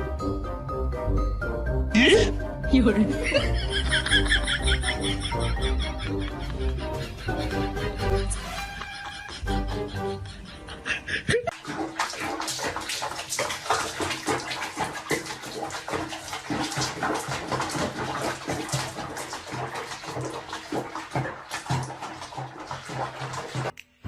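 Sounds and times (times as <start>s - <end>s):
water splashing in a bath: 2.7s - 6.4s, 11.3s - 23.8s.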